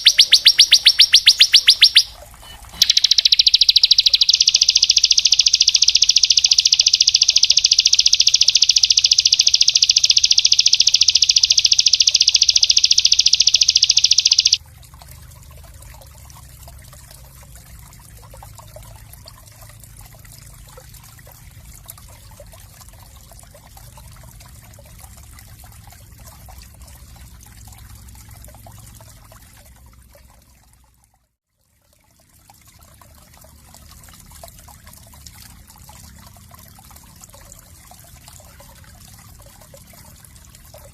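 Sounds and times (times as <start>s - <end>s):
songbird high-pitched trill: 0.0s - 14.6s
trickling water-like noise: 0.0s - 40.9s.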